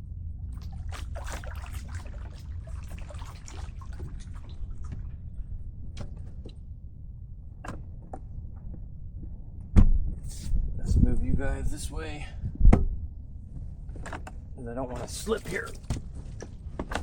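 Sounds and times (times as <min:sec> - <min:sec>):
wind rumble on microphone: 0:00.0 - 0:17.0
water splashing and trickling: 0:00.4 - 0:06.5, 0:14.9 - 0:16.4.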